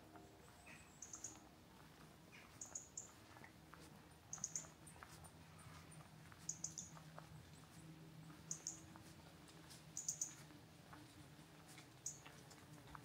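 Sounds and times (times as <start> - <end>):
small bird high thin calls: 0.6 - 1.4, 4.3 - 4.7, 6.5 - 6.9, 8.5 - 8.8, 10.0 - 10.4.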